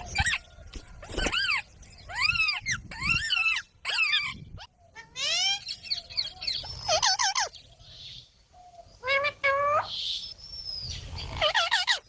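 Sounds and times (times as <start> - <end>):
parrot calling: 1.2 - 7.6, 11.1 - 12.0.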